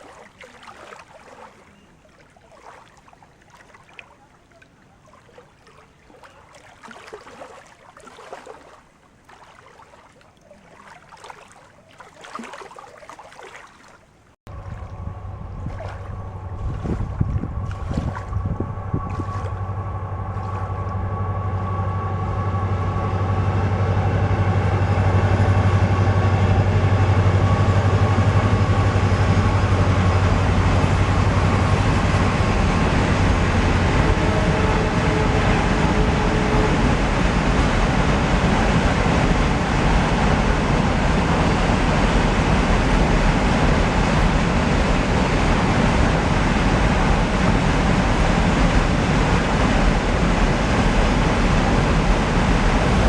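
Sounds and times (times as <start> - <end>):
diesel locomotive engine drone: 14.5 - 53.0
rolling rumble of train wagons: 14.5 - 53.0.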